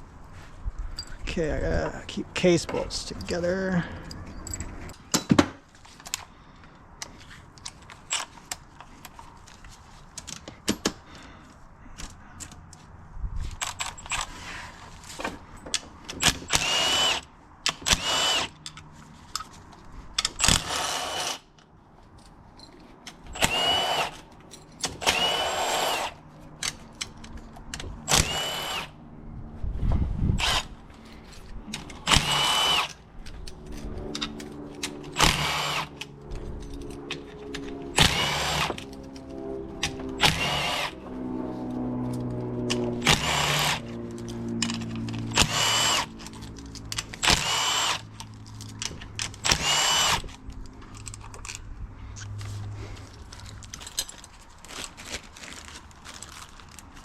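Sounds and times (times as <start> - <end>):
metal bolts and tools clinking: 2.6 - 5.4, 36.3 - 37.8
power drill whining: 16.2 - 18.6, 20.4 - 21.4, 23.3 - 24.2, 25.0 - 26.2, 28.1 - 28.9, 30.4 - 30.8, 31.7 - 33.0, 34.7 - 36.0, 37.2 - 41.0, 42.7 - 44.0, 44.6 - 46.5, 47.2 - 48.0, 49.4 - 50.4.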